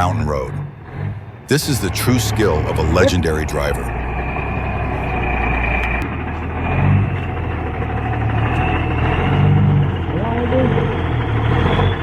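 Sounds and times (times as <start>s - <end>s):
truck engine running: 0.0s - 12.0s
thin steady whine: 1.5s - 10.9s.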